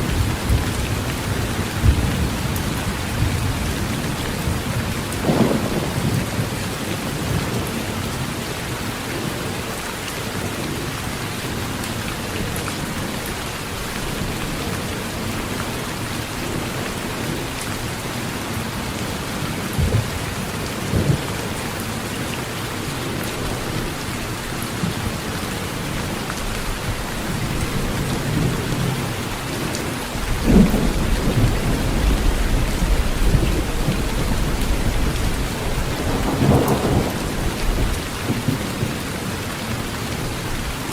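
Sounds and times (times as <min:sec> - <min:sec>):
thunder rumbling: 0:00.0 - 0:08.0, 0:19.1 - 0:21.6, 0:24.7 - 0:39.2
heavy rain on metal roof: 0:00.0 - 0:40.9.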